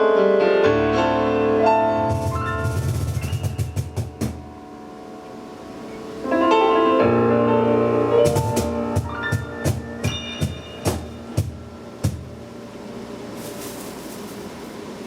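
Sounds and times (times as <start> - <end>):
piano chords: 0.0 - 15.0
sharp percussion strikes: 2.1 - 4.6, 8.2 - 12.6.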